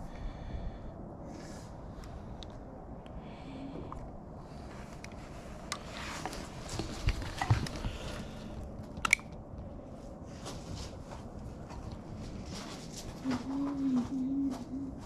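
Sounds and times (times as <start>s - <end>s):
tools and plastic clicking: 8.9s - 9.4s.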